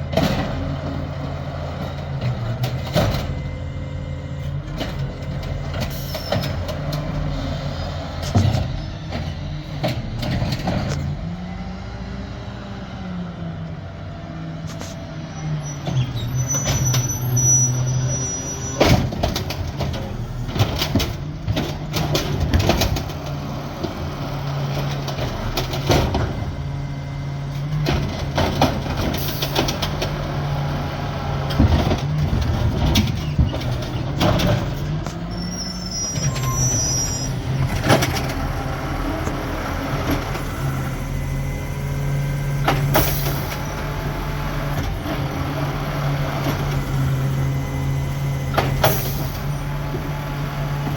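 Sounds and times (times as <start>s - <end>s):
garbage truck engine running: 0.0s - 50.9s
metal and plastic knocks and bangs: 31.5s - 35.2s.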